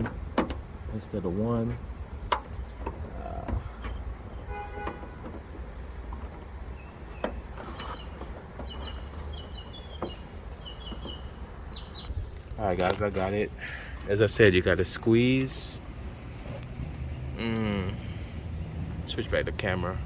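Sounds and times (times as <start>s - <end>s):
high bird chirps: 6.7s - 12.3s.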